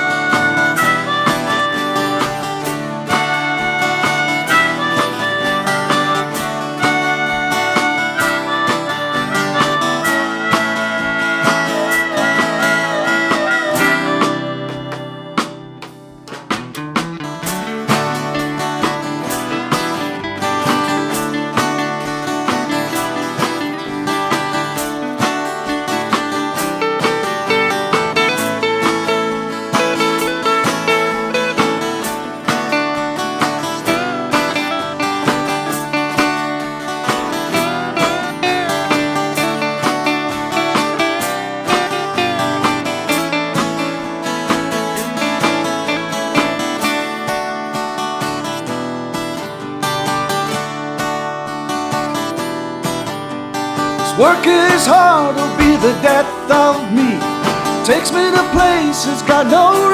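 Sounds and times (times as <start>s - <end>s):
harmonica: 0.0s - 16.6s, 17.6s - 47.4s
strummed acoustic guitars: 0.0s - 59.9s.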